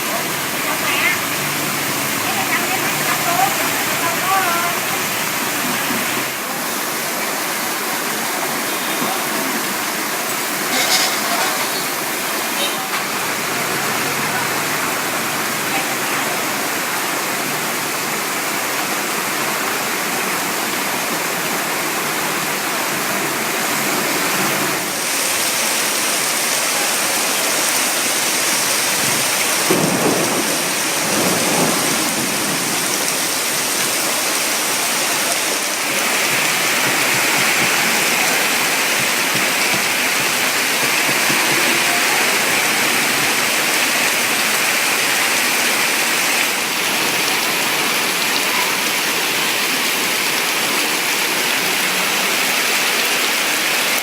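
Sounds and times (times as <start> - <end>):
heavy rain on flooded street: 0.0 - 54.0.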